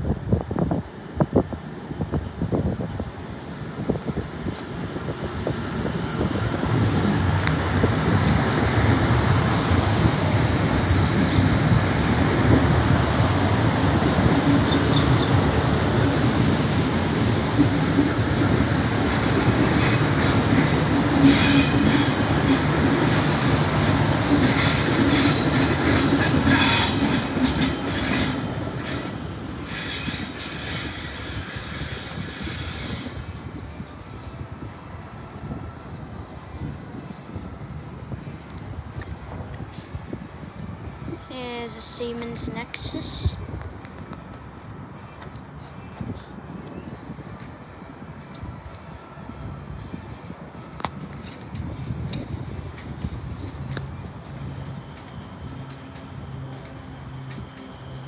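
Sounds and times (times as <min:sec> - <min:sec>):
train passing on tracks: 0:00.0 - 0:58.0
high wheel squeal: 0:03.2 - 0:12.2, 0:26.2 - 0:33.4.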